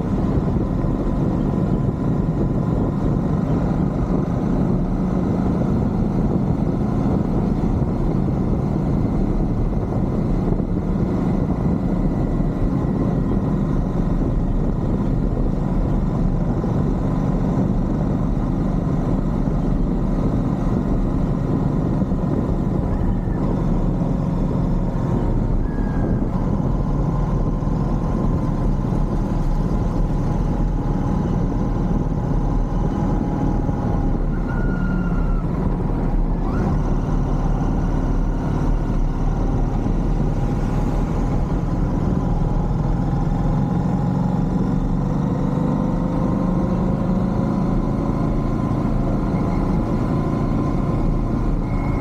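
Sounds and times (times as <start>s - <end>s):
motorcycle engine cruising: 0.0s - 52.0s.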